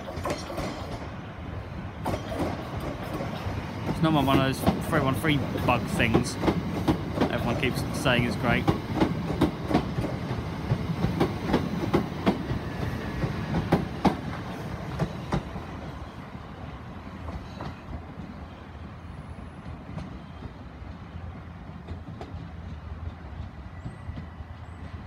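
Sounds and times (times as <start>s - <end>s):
wheels clicking over rail joints: 0.0s - 16.0s
electric train rumble: 0.0s - 25.0s.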